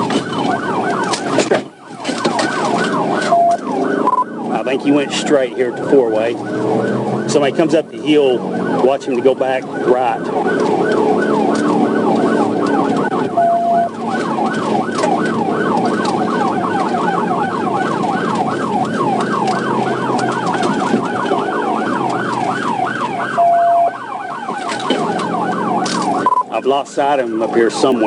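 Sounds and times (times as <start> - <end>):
car engine and road noise: 0.0 - 28.0
police siren yelping: 0.0 - 28.0
short steady beep: 26.2 - 26.5.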